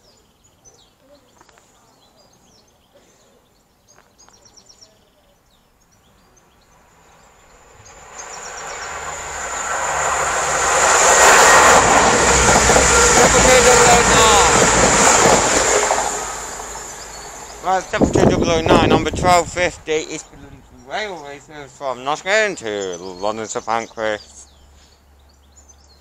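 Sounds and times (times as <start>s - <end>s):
birds chirping: 0.0s - 26.0s
diesel train rumble: 6.8s - 22.0s
high steady whine: 7.1s - 19.7s.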